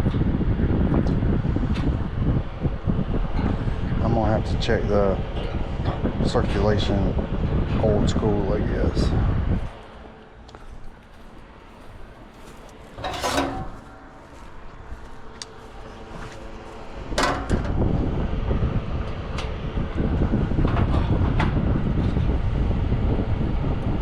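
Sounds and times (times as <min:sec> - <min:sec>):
fan motor blowing air: 0:00.0 - 0:24.0
scraping clatter: 0:11.1 - 0:14.5.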